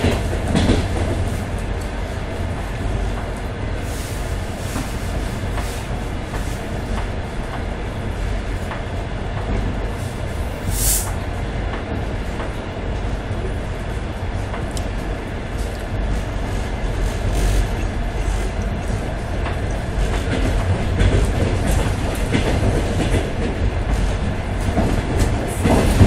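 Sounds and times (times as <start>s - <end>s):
train wheels rumbling on rails: 0.0s - 26.0s
short hiss: 10.6s - 11.2s.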